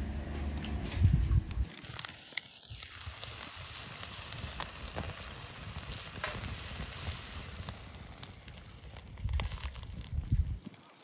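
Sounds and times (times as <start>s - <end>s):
campfire crackling and popping: 1.5s - 11.0s.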